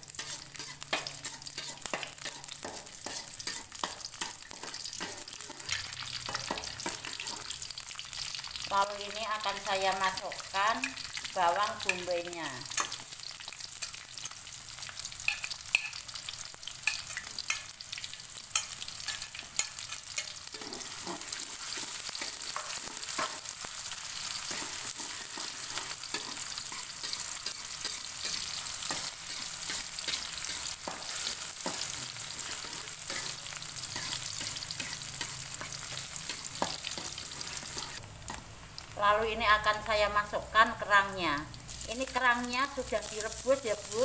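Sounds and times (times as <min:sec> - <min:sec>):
metal spatula scraping a wok: 0:00.0 - 0:07.6, 0:16.8 - 0:38.4
onion sizzling in hot oil: 0:00.0 - 0:44.0.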